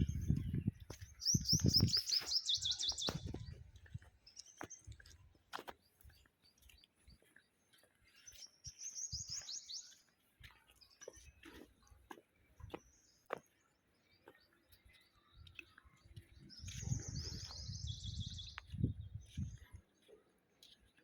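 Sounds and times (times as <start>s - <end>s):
songbird trilling: 1.2s - 3.3s.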